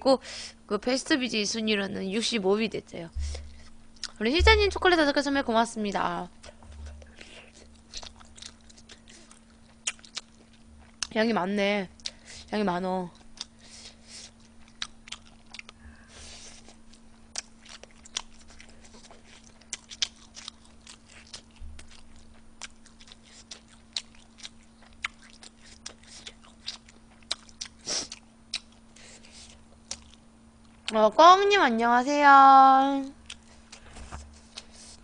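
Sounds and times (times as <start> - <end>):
faint steady hum: 0.0 - 35.0
person chewing food: 3.2 - 4.2, 6.4 - 11.2, 13.1 - 30.9, 33.2 - 35.0.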